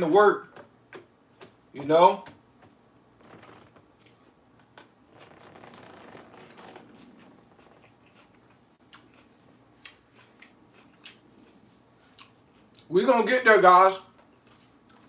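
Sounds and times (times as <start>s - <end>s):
lettuce being chewed: 5.1s - 12.9s, 14.2s - 15.0s.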